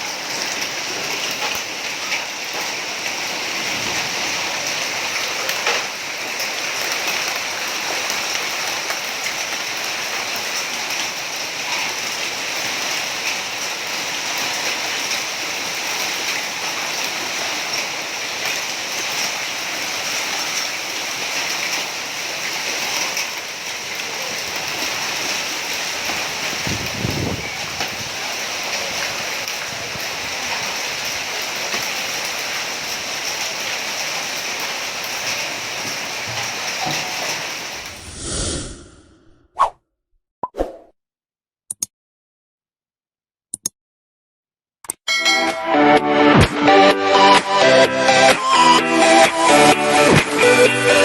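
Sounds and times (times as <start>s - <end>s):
hailstones ticking on surfaces: 0.0s - 37.9s
heavy rain: 0.0s - 38.8s, 45.8s - 51.0s.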